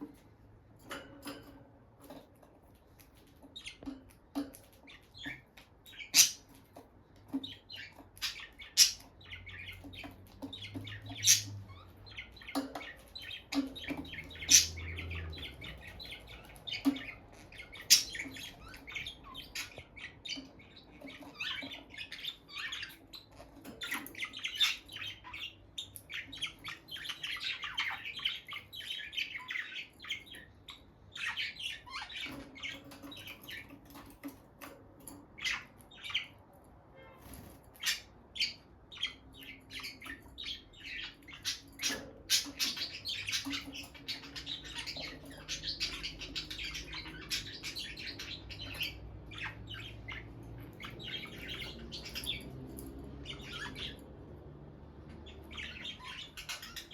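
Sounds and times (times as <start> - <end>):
lovebirds chirping and squawking: 0.0 - 56.9.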